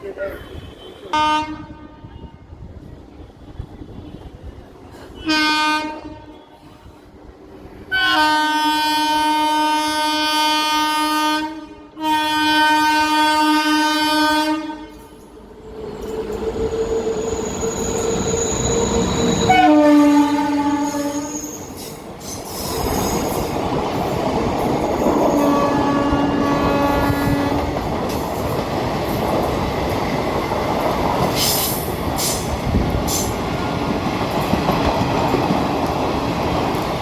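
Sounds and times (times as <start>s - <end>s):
locomotive horn blasts: 0.4s - 2.4s, 5.2s - 6.6s, 7.9s - 15.1s, 19.4s - 21.5s, 25.2s - 27.7s
train rushing: 12.0s - 37.0s
high-pitched wheel squeal: 16.6s - 20.2s, 20.8s - 23.4s.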